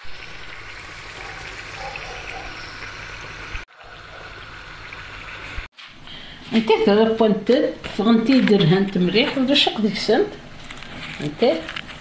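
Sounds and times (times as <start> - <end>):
dough sizzling in hot oil: 0.0 - 5.7.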